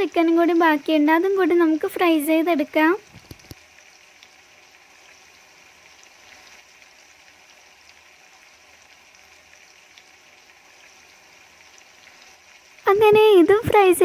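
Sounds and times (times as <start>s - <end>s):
chicken frying in oil: 0.0s - 14.0s
small oil pops: 3.1s - 3.7s.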